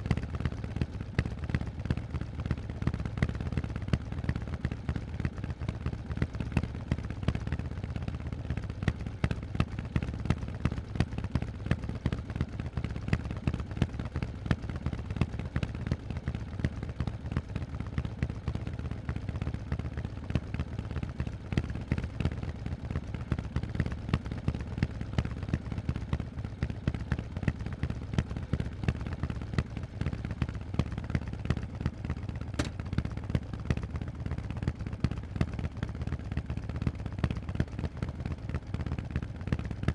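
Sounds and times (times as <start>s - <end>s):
motorcycle exhaust pulses: 15.9s - 36.8s, 38.6s - 39.9s.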